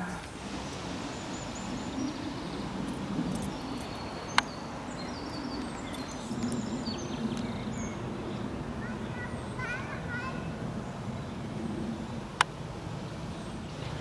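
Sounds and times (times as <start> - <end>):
small birds chirping: 0.0 - 12.6
outdoor background noise: 0.0 - 14.0.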